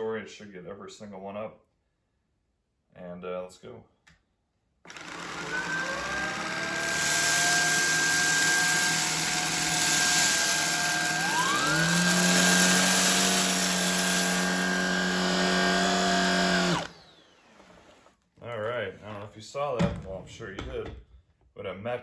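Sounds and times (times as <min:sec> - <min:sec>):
vacuum cleaner motor whine: 0:04.9 - 0:18.1.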